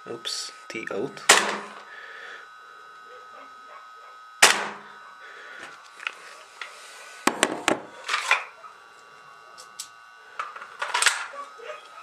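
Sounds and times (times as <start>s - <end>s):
airsoft pistol shot: 1.3s - 1.8s, 4.4s - 4.8s.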